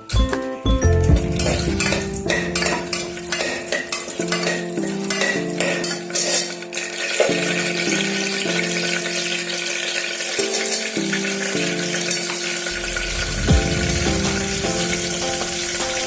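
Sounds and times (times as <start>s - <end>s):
background music: 0.0s - 16.0s
food sizzling in a pan: 1.2s - 16.0s
spoon scraping a pan: 1.4s - 8.7s.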